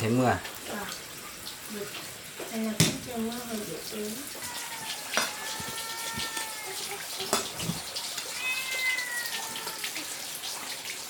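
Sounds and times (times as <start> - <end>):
cat meowing: 4.4 - 10.3.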